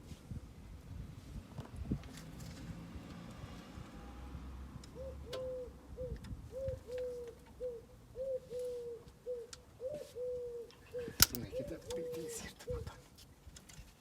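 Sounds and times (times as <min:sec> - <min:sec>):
dove cooing: 0:04.9 - 0:13.0.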